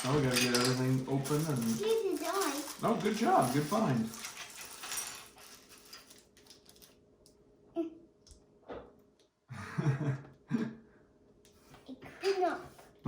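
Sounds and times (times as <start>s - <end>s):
plastic pieces clicking and rattling: 0.0s - 7.0s.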